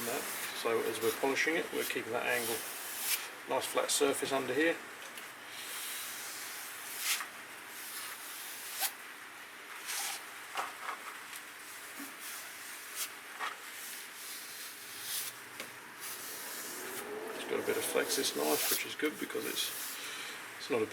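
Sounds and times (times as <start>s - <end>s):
knife stropping on vinyl strop: 1.8s - 3.3s, 12.0s - 20.0s.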